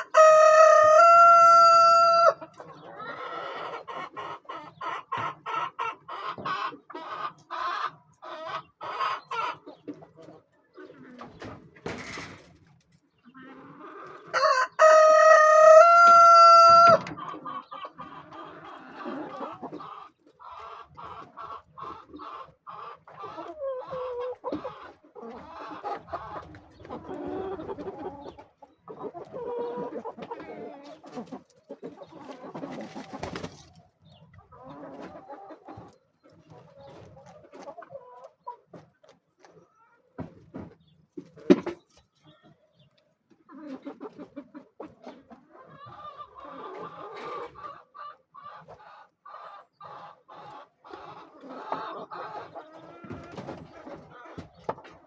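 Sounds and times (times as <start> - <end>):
rooster crowing: 0.0 - 2.4, 14.4 - 17.1
chickens clucking: 0.0 - 55.0.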